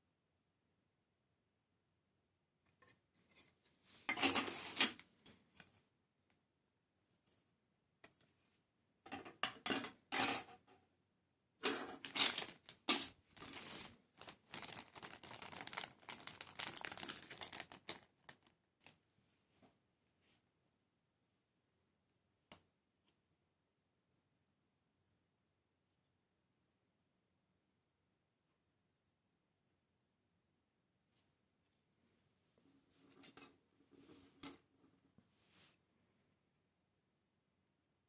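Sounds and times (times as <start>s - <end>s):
packaging wrapping crinkling: 12.0s - 19.0s.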